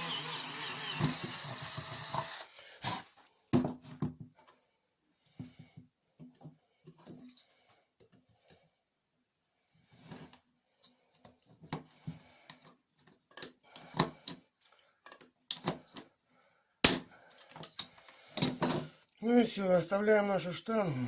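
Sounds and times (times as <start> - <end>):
tools clicking and knocking: 12.5 - 16.1.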